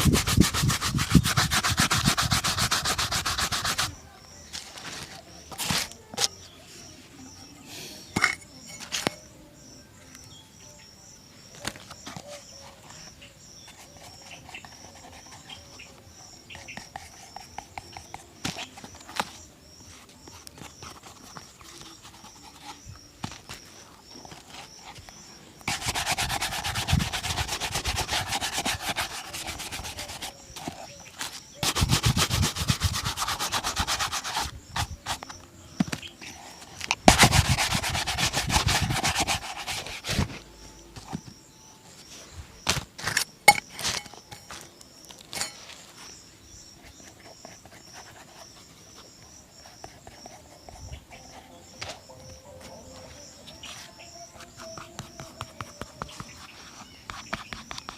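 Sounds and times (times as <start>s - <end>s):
shoe brush scrubbing: 0.0s - 6.0s, 24.3s - 41.2s, 53.6s - 57.9s
light taps and rubbing: 46.8s - 57.9s.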